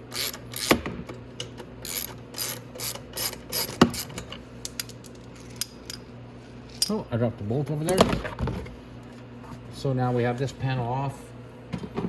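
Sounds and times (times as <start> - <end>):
ratchet wrench clicking: 0.1 - 0.8, 1.8 - 5.0.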